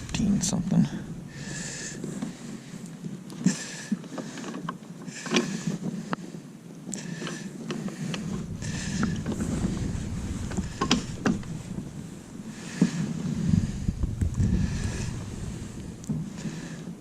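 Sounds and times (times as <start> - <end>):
wind on microphone: 0.0 - 3.2, 7.8 - 17.0
steady low rumble: 0.0 - 4.1, 5.0 - 17.0.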